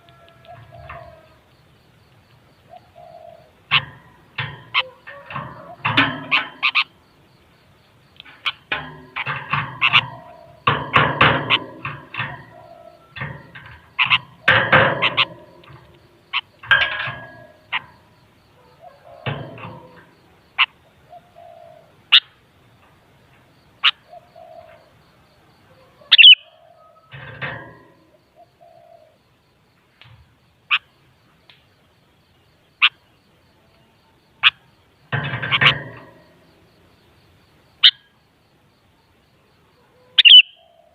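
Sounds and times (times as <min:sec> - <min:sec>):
bulbul chattering calls: 0:02.6 - 0:04.0, 0:26.1 - 0:26.6, 0:40.2 - 0:40.9
sharp high bird chirps: 0:26.1 - 0:26.6, 0:40.2 - 0:40.7.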